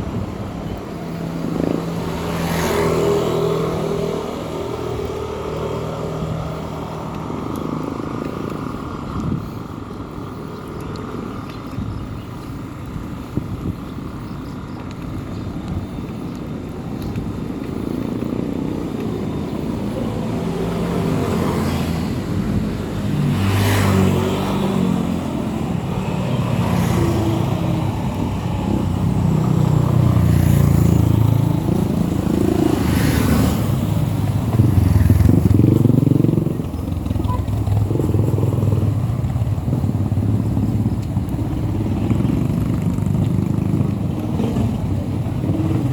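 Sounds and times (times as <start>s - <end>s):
motorcycle engine running: 34.4s - 45.9s.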